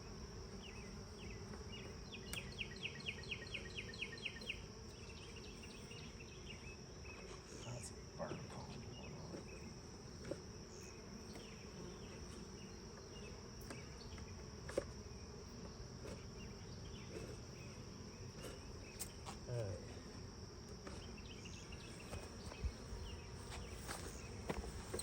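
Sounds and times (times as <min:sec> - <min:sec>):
honeybees buzzing: 0:00.0 - 0:25.0
sharp clicks from hive: 0:01.5 - 0:02.5
high-pitched insect trill: 0:02.1 - 0:09.8.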